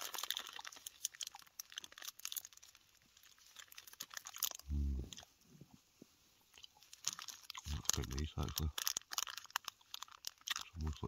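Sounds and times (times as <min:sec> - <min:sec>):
person chewing chocolate: 0:00.0 - 0:05.3, 0:06.5 - 0:11.0
person humming: 0:04.7 - 0:05.2.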